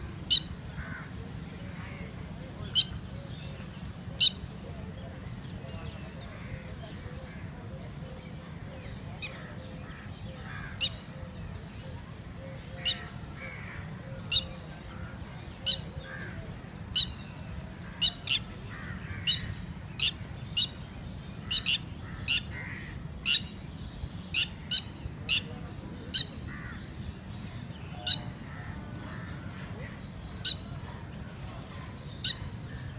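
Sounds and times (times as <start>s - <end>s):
lapwing calling: 0.3s - 1.1s, 12.6s - 20.8s, 21.4s - 23.6s, 24.3s - 26.9s, 27.9s - 29.4s, 30.3s - 30.8s, 32.2s - 32.6s.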